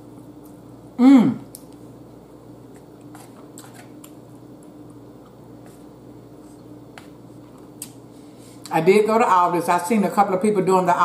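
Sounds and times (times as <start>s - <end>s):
person chewing: 2.6s - 8.0s.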